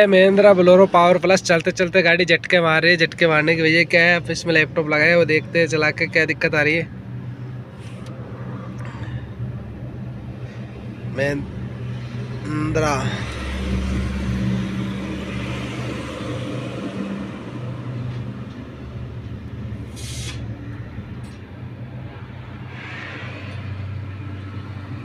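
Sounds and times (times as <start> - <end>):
diesel engine idling: 0.0 - 22.7
short hiss: 19.9 - 20.5.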